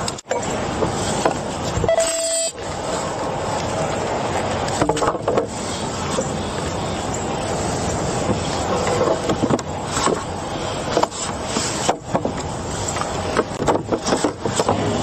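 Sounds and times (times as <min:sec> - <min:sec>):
roadside traffic noise: 0:00.0 - 0:15.0
short steady tone: 0:01.8 - 0:02.6.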